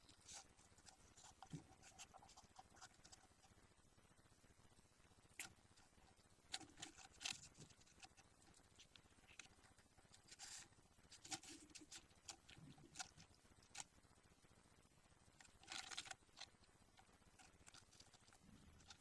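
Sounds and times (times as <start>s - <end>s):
faint scratches and clicks: 0.0s - 14.5s, 15.2s - 19.0s.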